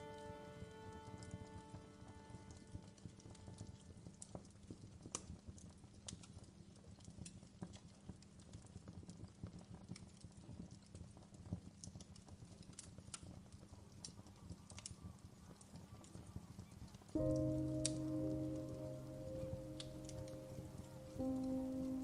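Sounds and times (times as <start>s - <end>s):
campfire crackling: 16.9s - 22.0s.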